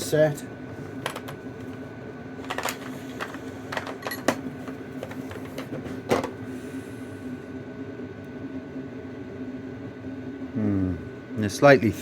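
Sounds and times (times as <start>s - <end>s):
steady low hum: 0.0s - 12.0s
metal tool parts clinking: 2.5s - 4.4s.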